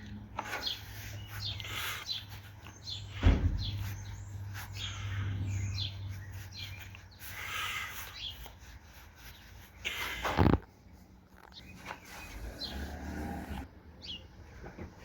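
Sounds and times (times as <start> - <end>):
birds chirping: 0.0 - 14.7
sharp thump: 3.2 - 3.8.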